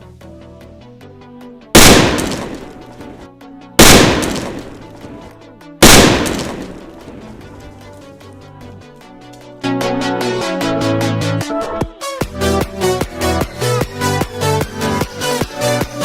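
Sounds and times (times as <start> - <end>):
electronic background music: 0.2 - 16.0
firecracker bangs: 1.8 - 3.1, 3.8 - 5.2, 5.8 - 7.4.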